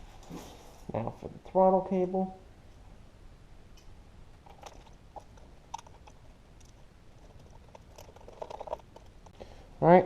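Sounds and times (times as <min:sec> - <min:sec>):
small metal parts clicking: 0:03.8 - 0:09.4.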